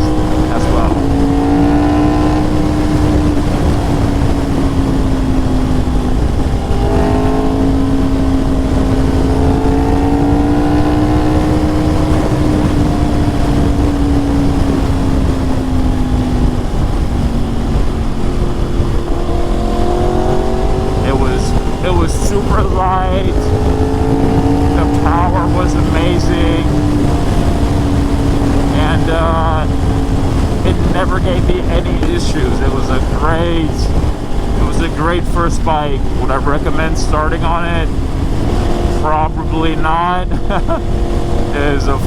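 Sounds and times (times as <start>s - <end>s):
motorcycle engine cruising: 0.0s - 42.0s
wind rush on microphone: 0.0s - 42.0s.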